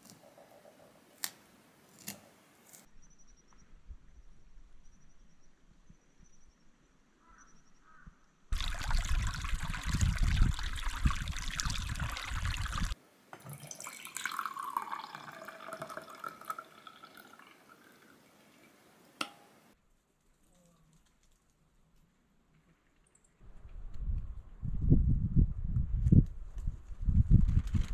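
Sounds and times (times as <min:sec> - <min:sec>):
water running from kitchen tap: 0:08.6 - 0:19.7.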